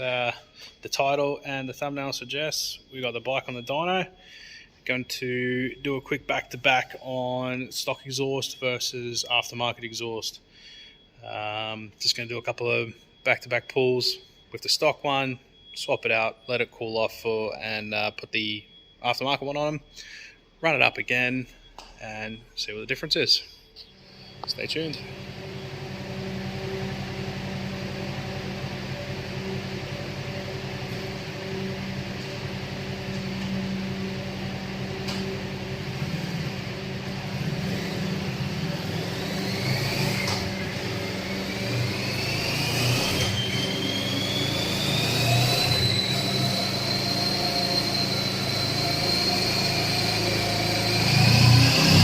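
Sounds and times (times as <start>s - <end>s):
high whine of spinning roller: 23.9s - 52.0s
motorcycle engine running: 24.4s - 42.0s.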